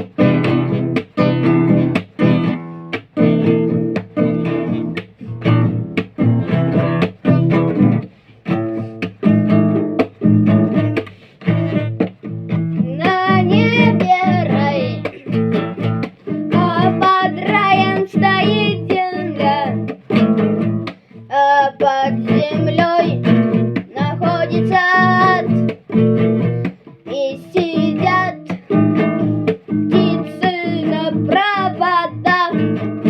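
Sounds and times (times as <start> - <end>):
acoustic guitar strumming chords: 0.0 - 33.0
person singing wordlessly: 12.7 - 20.0, 21.2 - 25.8, 27.0 - 33.0.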